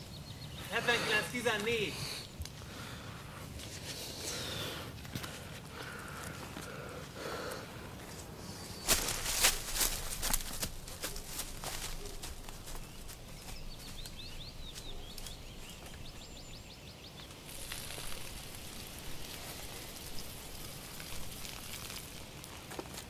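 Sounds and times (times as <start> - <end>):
songbird chirping and trilling: 0.0 - 2.4, 11.2 - 17.5
wind in leaves: 0.0 - 23.0.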